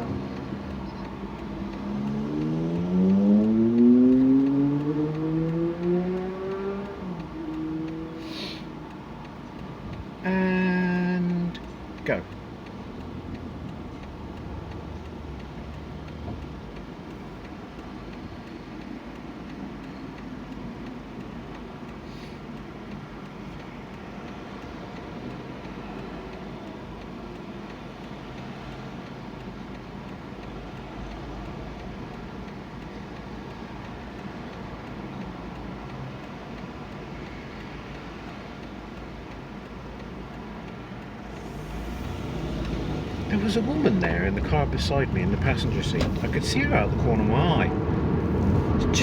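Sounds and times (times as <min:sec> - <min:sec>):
car engine: 0:00.0 - 0:17.8, 0:41.0 - 0:49.0
road noise: 0:00.0 - 0:49.0
turn signal ticking: 0:00.0 - 0:49.0.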